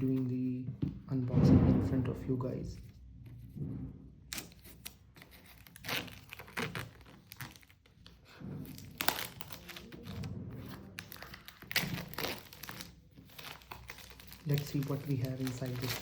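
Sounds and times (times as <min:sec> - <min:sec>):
box packaging crinkling and tearing: 0:04.5 - 0:07.9, 0:08.6 - 0:16.0.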